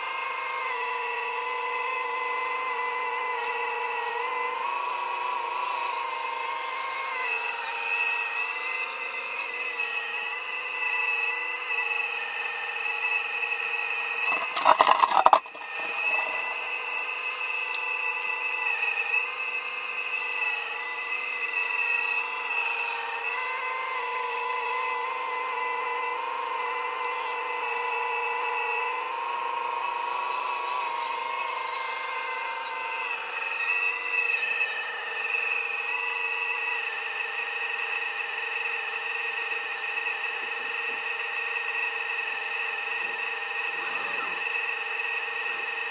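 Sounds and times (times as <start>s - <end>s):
motor whining: 0.0s - 45.9s.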